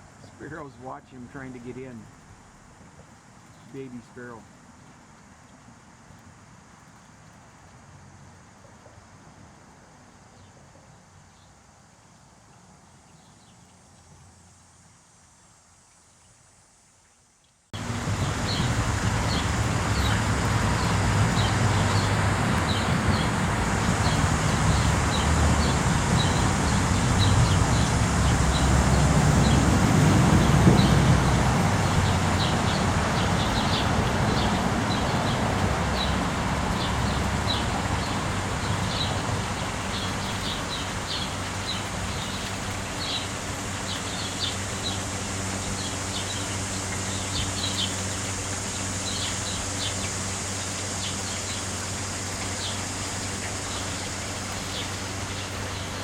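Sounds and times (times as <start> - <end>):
birds chirping: 0.2 - 2.5, 3.4 - 4.4, 17.8 - 56.0.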